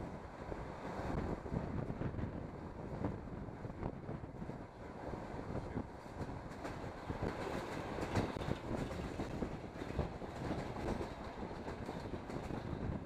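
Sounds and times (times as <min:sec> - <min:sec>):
train wheels clattering on rails: 0:04.0 - 0:13.0.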